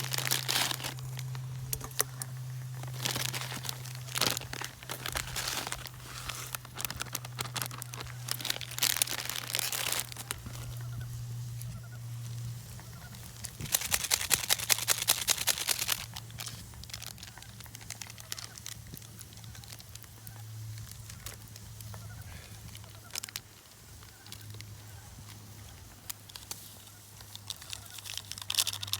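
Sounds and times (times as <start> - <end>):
crinkling and rustling handling: 0.0 - 28.9.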